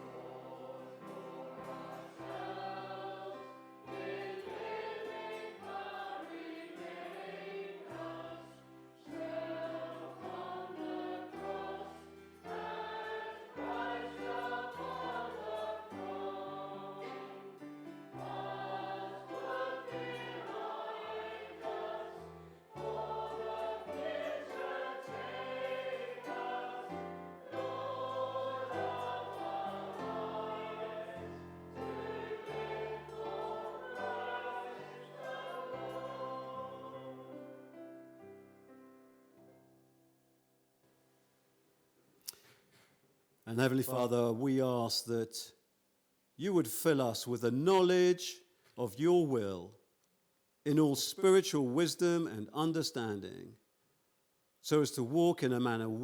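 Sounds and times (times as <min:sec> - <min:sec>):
group singing a hymn: 0:00.0 - 0:37.9
keyboard accompaniment: 0:09.2 - 0:39.2.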